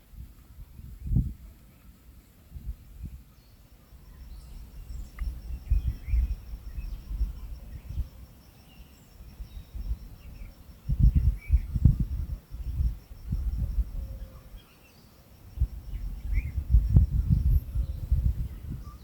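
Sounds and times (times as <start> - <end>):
insect high pulsed trill: 3.7 - 19.0
low rumbling thumps: 15.6 - 18.9.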